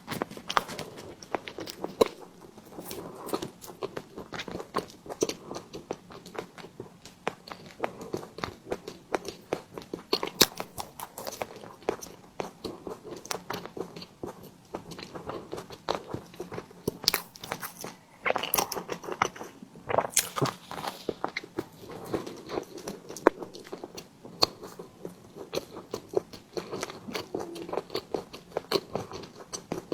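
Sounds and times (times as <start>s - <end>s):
person chewing: 0.0s - 29.9s
wet mouth clicks: 16.2s - 21.7s.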